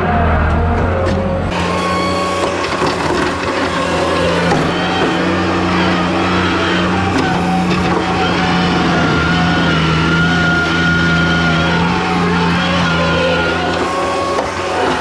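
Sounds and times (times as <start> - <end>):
skid steer engine running: 1.5 - 15.0.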